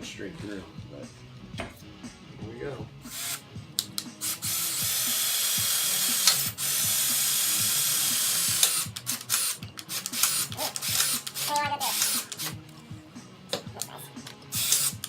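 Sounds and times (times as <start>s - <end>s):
drill whirring through metal: 3.1s - 12.6s, 14.5s - 15.0s.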